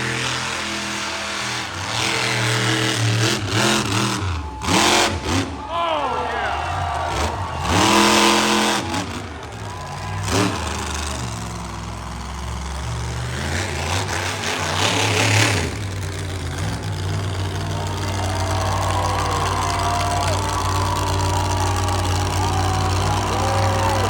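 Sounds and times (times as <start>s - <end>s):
truck engine revving: 0.0s - 24.0s.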